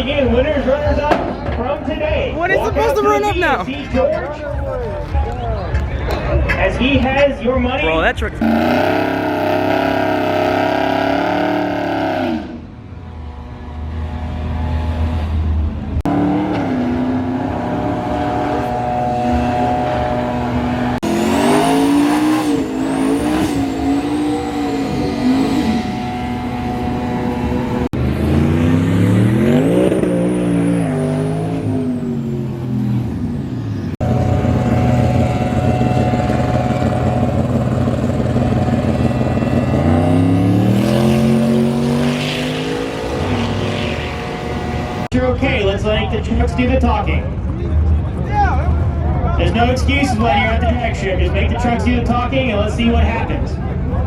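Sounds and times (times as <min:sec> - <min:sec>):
truck engines revving: 0:00.0 - 0:54.0
truck accelerating away: 0:08.4 - 0:45.1.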